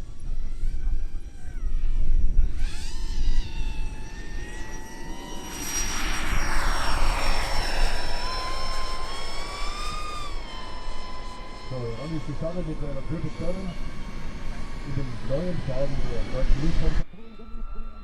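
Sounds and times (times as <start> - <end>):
electric ducted fans whining: 0.0 - 18.0
rushing air swell: 3.6 - 17.0.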